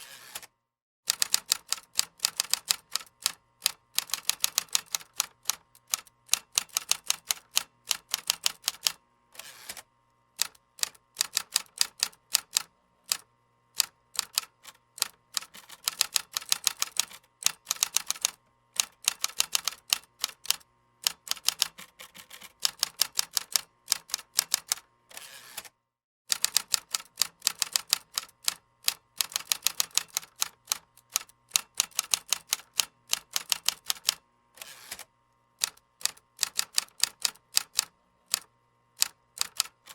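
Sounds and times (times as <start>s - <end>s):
computer keyboard typing: 1.1s - 9.0s, 10.4s - 13.2s, 13.8s - 24.8s, 26.3s - 34.2s, 35.6s - 39.9s.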